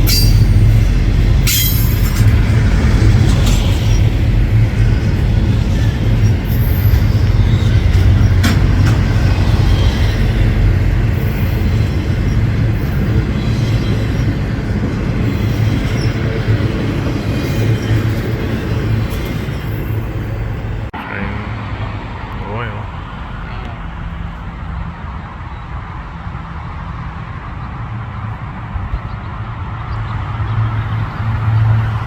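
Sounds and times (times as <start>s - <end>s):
train wheels clicking: 0.0s - 20.1s
freight train rumbling: 0.0s - 32.0s.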